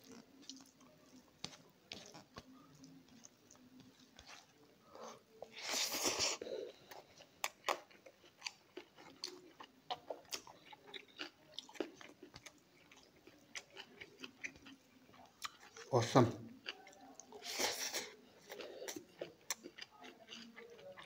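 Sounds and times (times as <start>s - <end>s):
wet chewing: 0.0s - 4.7s, 5.4s - 15.9s, 16.6s - 21.0s.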